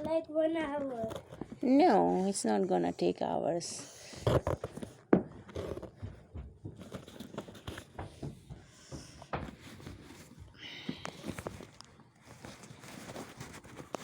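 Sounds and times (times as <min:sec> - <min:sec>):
fabric being handled: 0:11.2 - 0:14.0.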